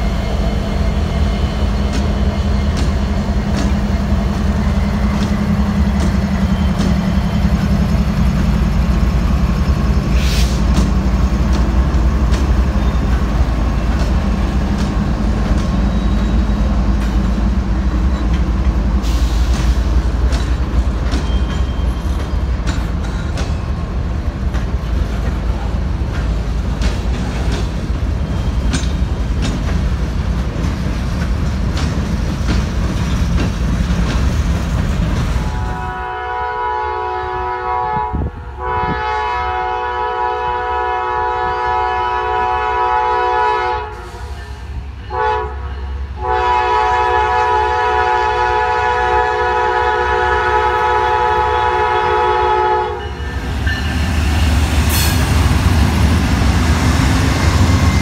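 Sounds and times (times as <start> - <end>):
diesel locomotive passing: 0.0 - 58.0
freight cars rumbling and clattering: 0.9 - 35.8
locomotive air horn: 35.5 - 53.3.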